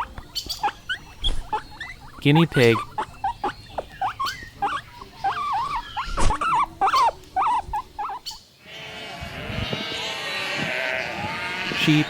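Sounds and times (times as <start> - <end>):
guinea pig squeaking: 0.0 - 8.5.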